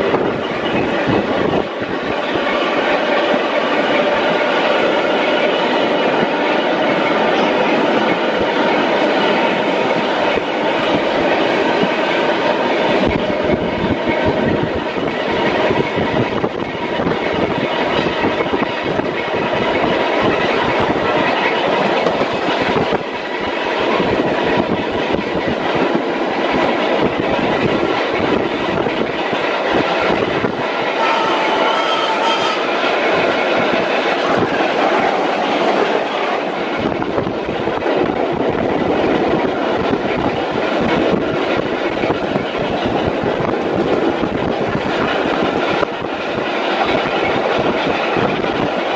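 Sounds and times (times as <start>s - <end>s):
train wheels rumbling on rail: 0.0s - 48.9s
wheels clickety-clack over joints: 0.0s - 48.9s.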